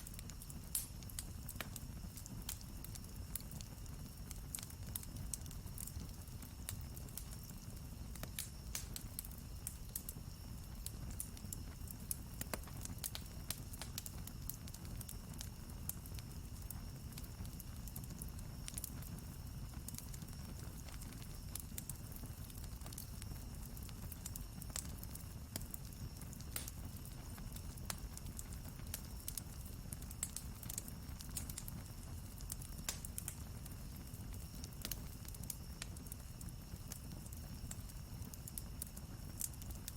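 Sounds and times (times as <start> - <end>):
burning wood snapping and popping: 0.0 - 6.0, 8.2 - 10.1, 19.9 - 39.9
campfire crackling: 0.0 - 39.9.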